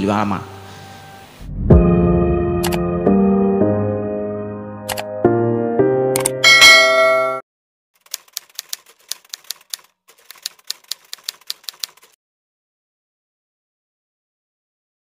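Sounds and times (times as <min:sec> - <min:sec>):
music burst: 0:01.4 - 0:04.8
typewriter key clicks: 0:08.0 - 0:12.2.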